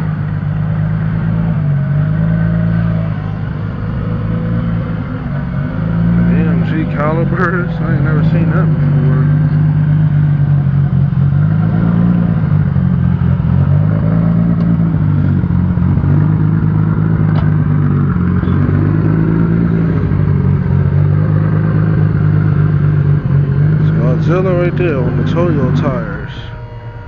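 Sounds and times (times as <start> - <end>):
car engine running: 0.0 - 27.0.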